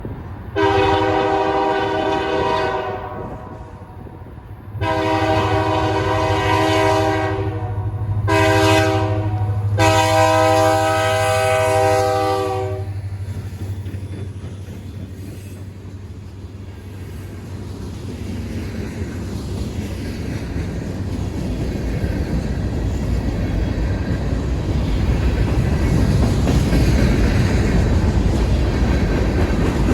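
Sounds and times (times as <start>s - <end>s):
locomotive air horn blasts: 0.6s - 3.9s, 4.8s - 13.0s.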